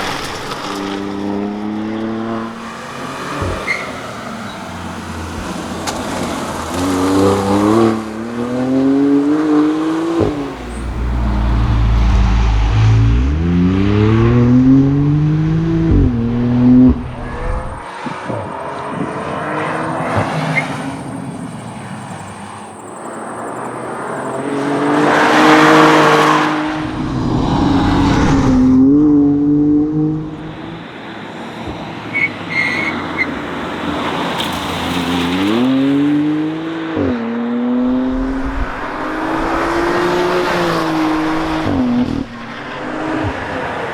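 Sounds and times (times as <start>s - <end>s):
car engine accelerating hard: 0.0s - 31.0s, 33.1s - 43.9s
loud rush of noise: 10.1s - 17.9s, 25.4s - 29.5s, 37.8s - 43.9s.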